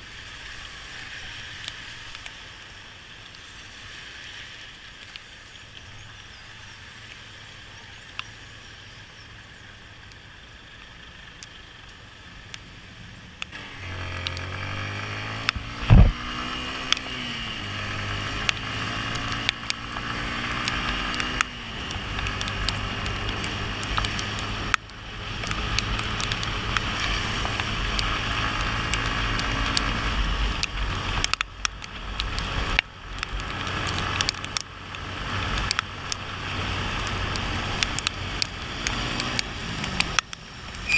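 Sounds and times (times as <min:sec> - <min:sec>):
tyres hissing on wet road: 0:00.0 - 0:40.9
raindrops ticking on microphone: 0:00.1 - 0:40.9
motorcycle engine accelerating: 0:13.5 - 0:40.9
loud thump: 0:15.8 - 0:16.2.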